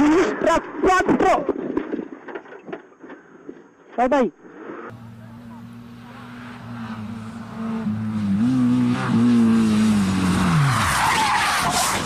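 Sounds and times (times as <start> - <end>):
rally car engine passing: 4.9 - 12.0
tyres skidding: 4.9 - 12.0.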